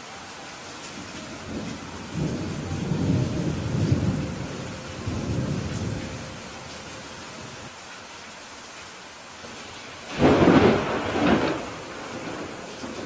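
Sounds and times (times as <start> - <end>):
steady rain falling: 0.0 - 13.0
thunder rumbling: 1.0 - 6.8, 10.1 - 13.0.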